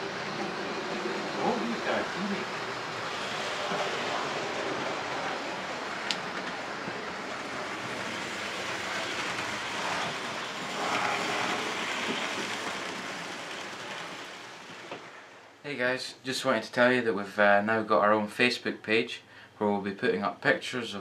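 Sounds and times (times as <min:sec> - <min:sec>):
model train wheels rattling on rail: 0:00.0 - 0:15.4.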